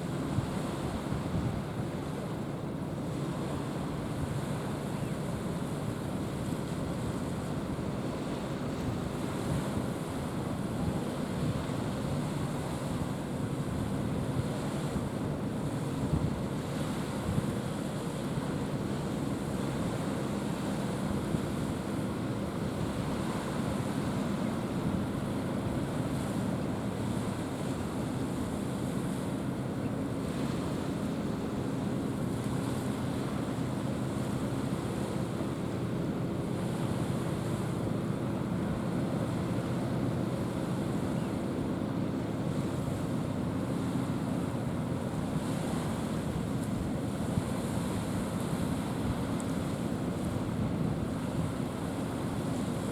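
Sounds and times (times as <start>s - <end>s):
low engine hum: 0.0s - 52.9s
sea wash: 0.0s - 52.9s
wind on microphone: 4.0s - 17.6s.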